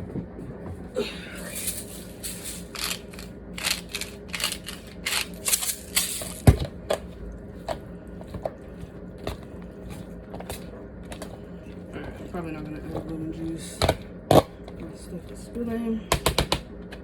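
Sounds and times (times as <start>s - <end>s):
crunchy chopping strokes: 2.5s - 6.6s.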